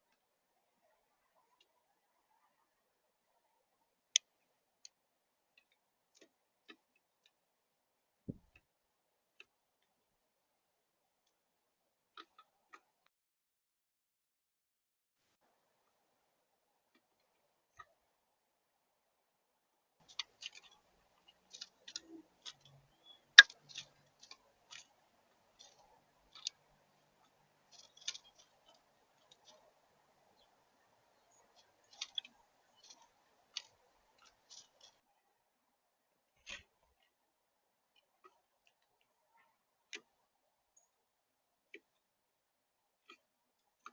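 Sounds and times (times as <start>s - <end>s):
birds pecking at seed: 20.0s - 35.0s.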